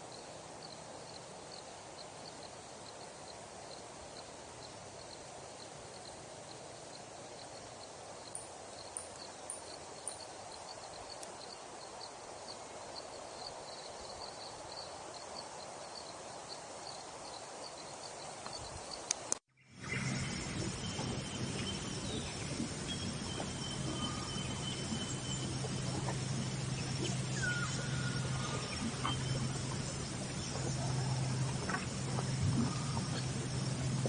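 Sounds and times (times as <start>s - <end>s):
faint high chirps: 19.6s - 34.0s.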